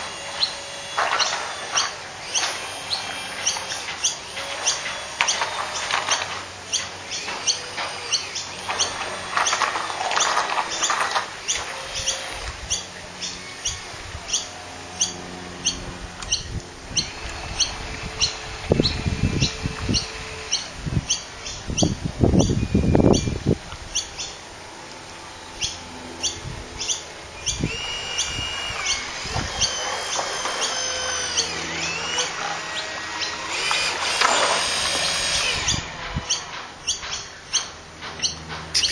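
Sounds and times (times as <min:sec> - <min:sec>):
wind buffeting microphone: 0:15.8 - 0:24.0, 0:26.4 - 0:29.9.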